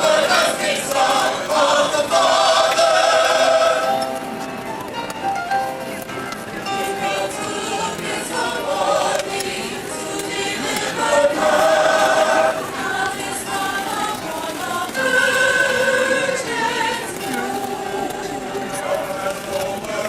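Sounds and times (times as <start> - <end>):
voices singing: 0.0 - 4.2, 6.8 - 20.0.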